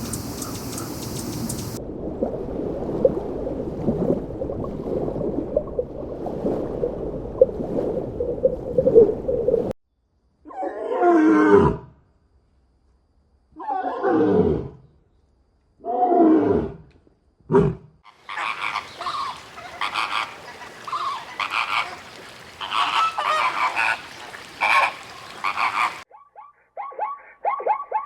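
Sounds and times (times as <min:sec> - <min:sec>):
flock of birds calling: 0:00.0 - 0:01.8, 0:18.1 - 0:26.0
animal calls sliding down: 0:18.3 - 0:26.0.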